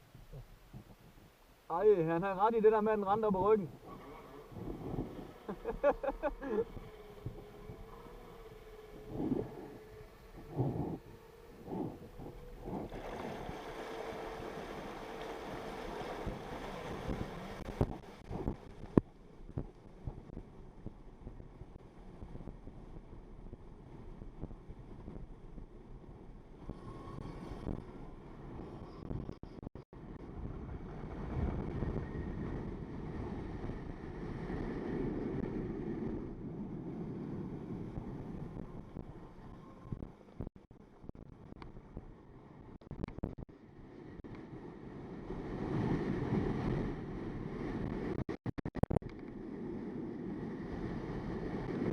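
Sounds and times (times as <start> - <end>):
wind on microphone: 0.0 - 51.9
jet ski engine humming: 2.3 - 29.2
water rushing: 11.8 - 18.4.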